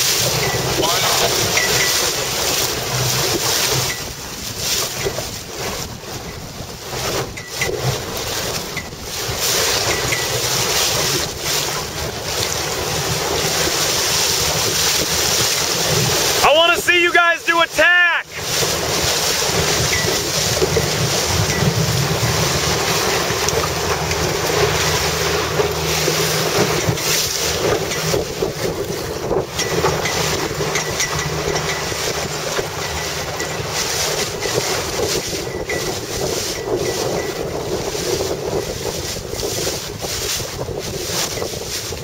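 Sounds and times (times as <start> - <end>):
water noise: 0.0 - 42.0
wind buffeting microphone: 18.3 - 42.0.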